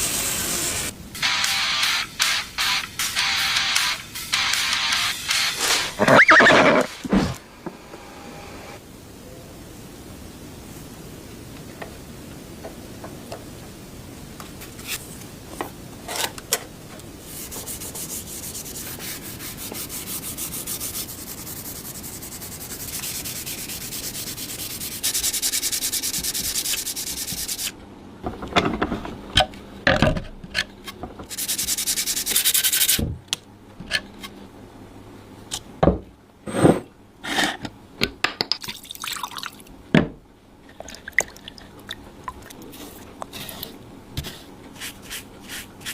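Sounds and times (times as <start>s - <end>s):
abrasive sanding on metal: 17.3s - 27.7s, 31.3s - 33.0s.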